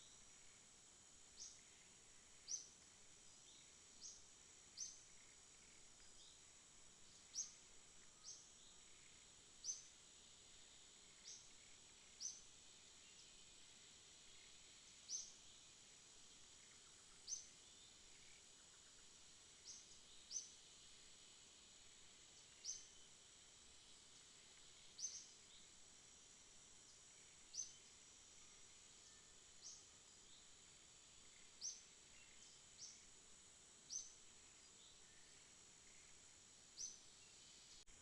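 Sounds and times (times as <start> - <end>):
high insect drone: 0.0 - 38.0.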